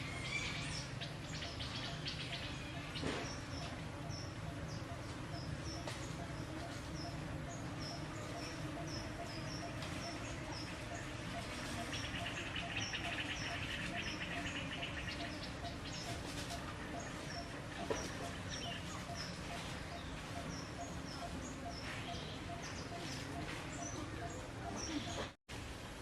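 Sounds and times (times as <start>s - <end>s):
steady outdoor hiss: 0.0s - 26.0s
insect buzzing: 2.2s - 19.7s.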